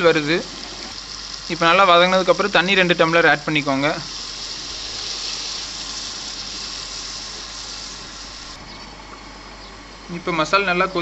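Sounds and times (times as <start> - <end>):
masala sizzling in hot oil: 0.0 - 8.6
water poured into pan: 3.4 - 8.6.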